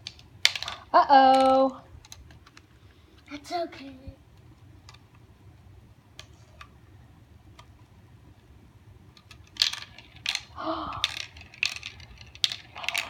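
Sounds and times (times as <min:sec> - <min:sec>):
marbles clattering down marble run: 0:09.6 - 0:13.0.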